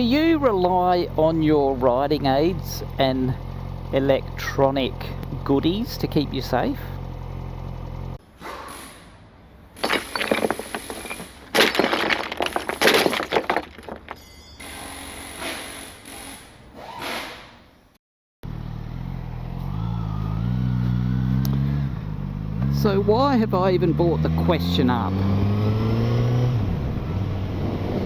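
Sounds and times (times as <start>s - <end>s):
motorcycle engine revving: 0.0s - 8.2s, 18.4s - 28.0s
scraping: 9.8s - 14.3s
crashing clattering impacts: 9.8s - 14.4s.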